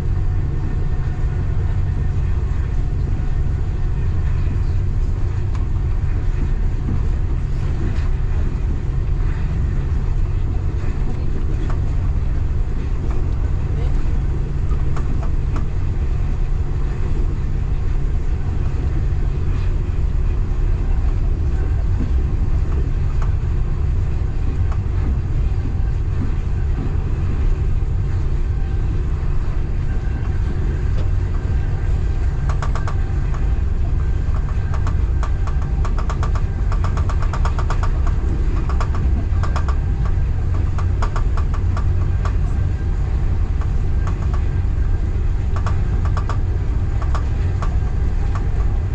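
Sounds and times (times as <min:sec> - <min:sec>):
train rumbling: 0:00.0 - 0:48.9
rapid rattling clicks: 0:32.4 - 0:33.4, 0:34.3 - 0:42.4, 0:45.5 - 0:48.8.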